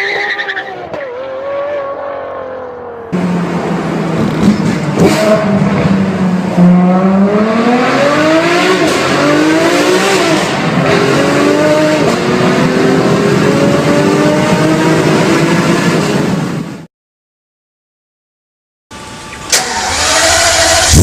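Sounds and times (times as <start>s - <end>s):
car engine accelerating hard: 1.4s - 16.6s, 19.6s - 21.0s.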